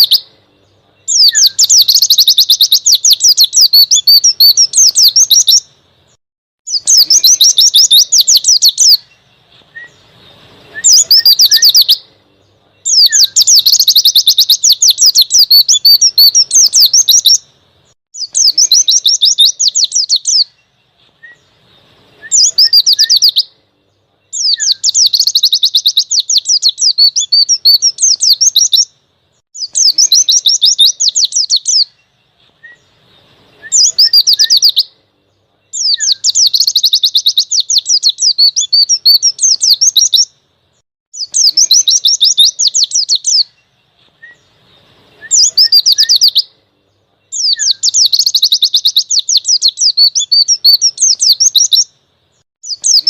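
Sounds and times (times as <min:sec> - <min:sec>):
bird chattering trills: 0:01.0 - 0:05.7, 0:06.7 - 0:09.3, 0:09.9 - 0:12.1, 0:12.8 - 0:17.4, 0:18.2 - 0:20.7, 0:21.4 - 0:23.5, 0:24.3 - 0:28.9, 0:29.6 - 0:32.1, 0:33.6 - 0:34.9, 0:41.2 - 0:43.7, 0:47.3 - 0:51.9, 0:52.6 - 0:53.0.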